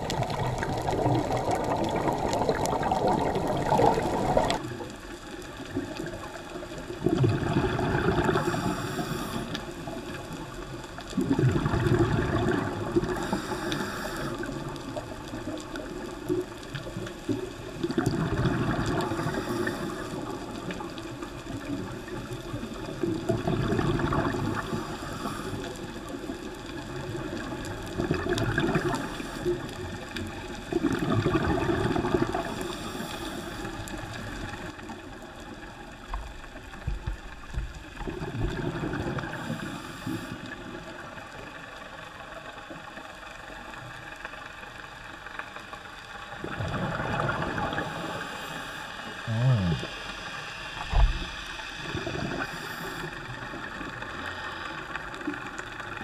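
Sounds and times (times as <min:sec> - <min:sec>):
bubbling exhalation underwater: 0:00.0 - 0:04.8, 0:06.8 - 0:08.8, 0:11.1 - 0:13.5, 0:17.7 - 0:20.8, 0:21.5 - 0:24.9, 0:25.9 - 0:29.2, 0:30.7 - 0:32.6, 0:49.2 - 0:50.1
underwater hiss: 0:06.0 - 0:10.6, 0:11.2 - 0:17.0, 0:17.6 - 0:36.0, 0:36.6 - 0:43.1, 0:44.8 - 0:56.0.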